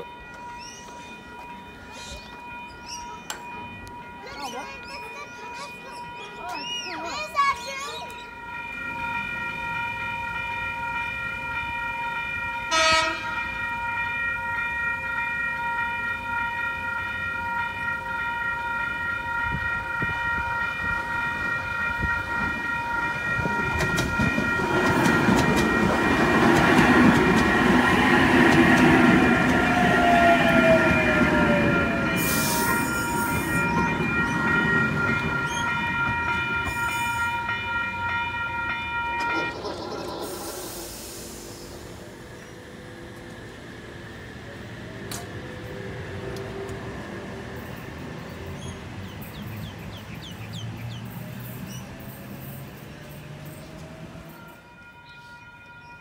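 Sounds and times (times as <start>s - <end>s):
level crossing alarm: 0.0s - 41.1s
electric train passing: 0.0s - 56.0s.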